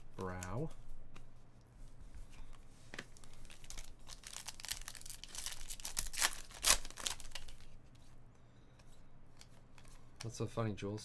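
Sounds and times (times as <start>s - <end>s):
foil wrapper tearing and crinkling: 3.4s - 7.5s.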